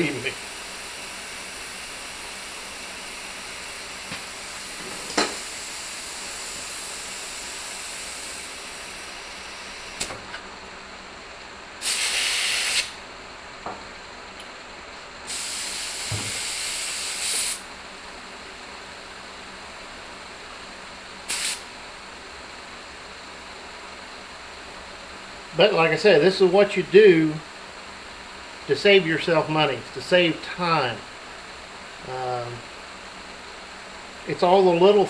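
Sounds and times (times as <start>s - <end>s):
compressed air hissing: 11.8s - 13.0s, 15.2s - 17.7s, 21.2s - 21.7s.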